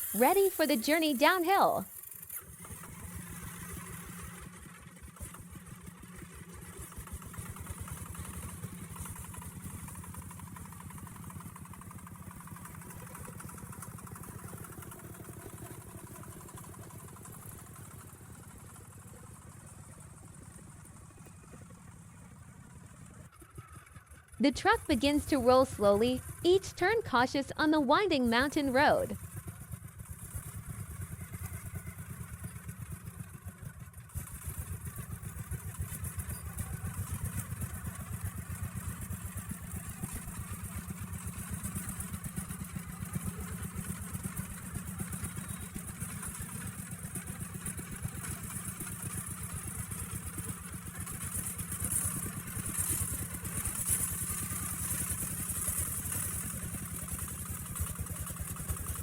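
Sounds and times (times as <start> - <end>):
truck engine running: 0.0 - 2.1.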